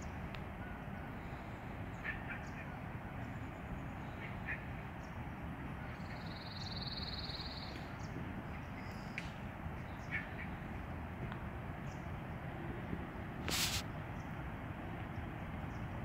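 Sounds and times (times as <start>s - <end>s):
outdoor background noise: 0.0s - 16.0s
short bird calls: 13.5s - 13.8s.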